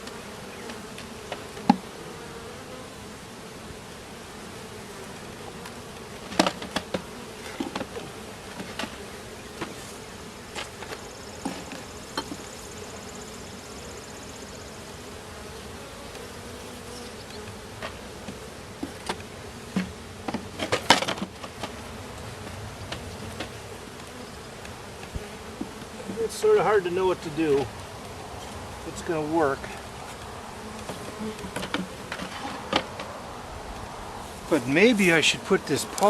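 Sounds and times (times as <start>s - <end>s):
clicks and knocks from hive: 0.0s - 2.7s, 5.2s - 12.7s, 15.6s - 26.7s, 29.6s - 33.2s
bees buzzing: 0.0s - 36.0s.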